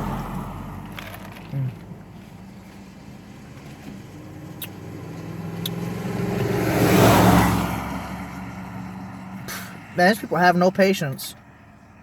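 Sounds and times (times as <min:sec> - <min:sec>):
car passing on wet road: 0:00.0 - 0:01.4, 0:03.1 - 0:10.0.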